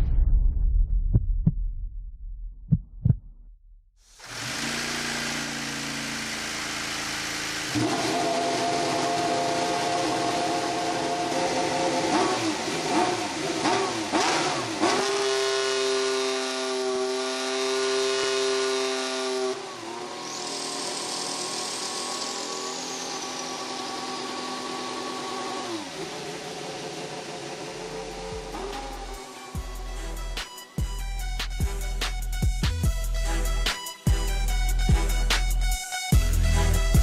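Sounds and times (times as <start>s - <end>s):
racing car engine revving: 4.2s - 30.2s
high turbo whistle: 4.4s - 12.6s, 14.9s - 30.2s.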